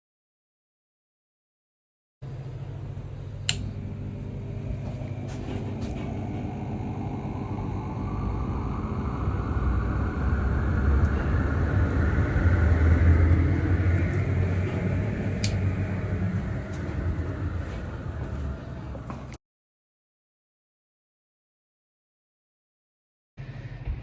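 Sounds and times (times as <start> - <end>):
exhaust fan running: 2.2 - 19.4
sharp click: 3.5 - 3.7.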